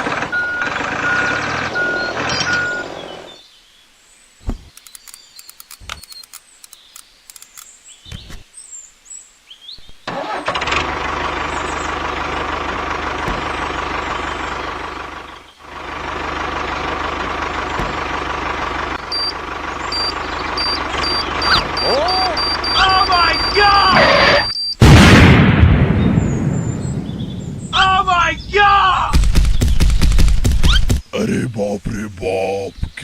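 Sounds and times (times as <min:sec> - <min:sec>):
engine running with hum: 0:00.0 - 0:03.4, 0:10.1 - 0:24.5
faint clicks: 0:04.7 - 0:07.7.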